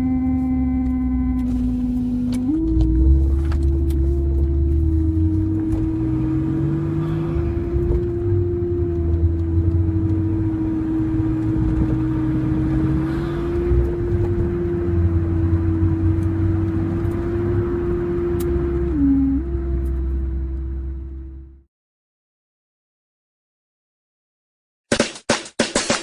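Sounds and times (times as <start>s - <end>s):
high engine whine: 0.0s - 21.6s
car engine low rumble: 0.0s - 21.7s.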